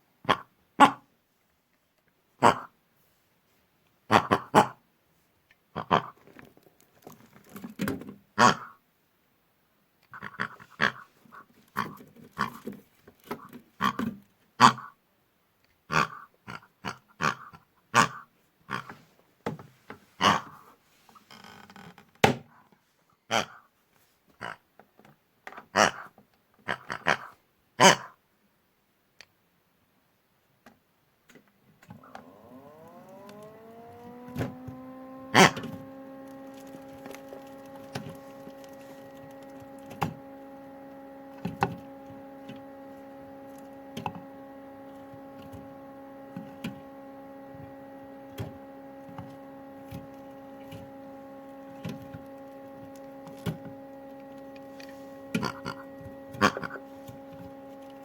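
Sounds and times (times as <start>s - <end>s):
washing machine motor whine: 31.8s - 58.0s.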